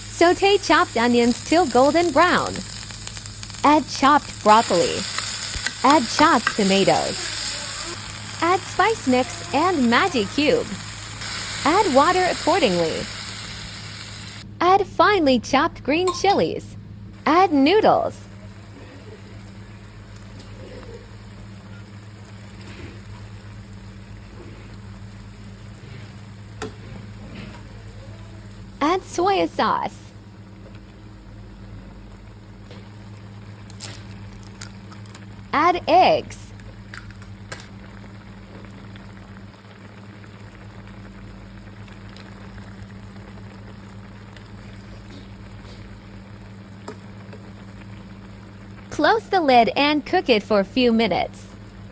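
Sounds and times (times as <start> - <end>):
noodles bubbling in a pan: 0.0 - 14.5, 17.6 - 51.9
steady low hum: 0.0 - 51.9
water simmering and bubbling: 36.7 - 49.1.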